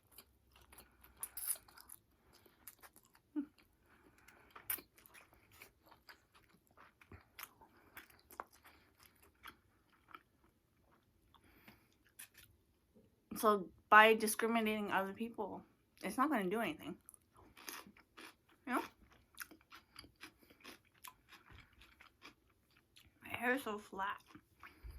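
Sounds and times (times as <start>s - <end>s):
person chewing food: 0.0s - 12.7s, 17.0s - 23.2s, 24.2s - 24.9s.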